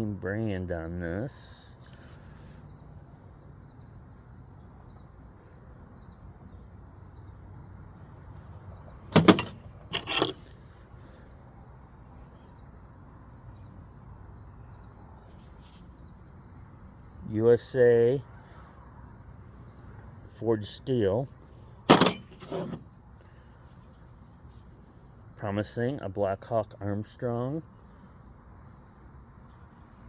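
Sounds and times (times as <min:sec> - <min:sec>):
crickets trilling: 0:00.0 - 0:30.0
steel hand tools clanking: 0:09.2 - 0:10.4.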